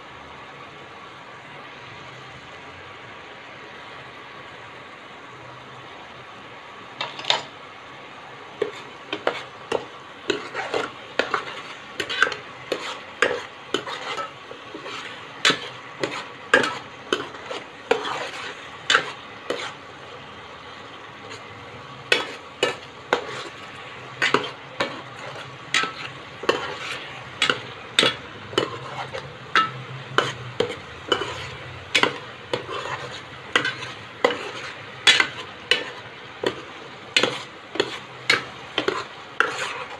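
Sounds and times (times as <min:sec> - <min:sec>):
low sizzle: 0:00.0 - 0:39.9
ladle scraping a pan: 0:08.5 - 0:20.4, 0:21.2 - 0:39.9.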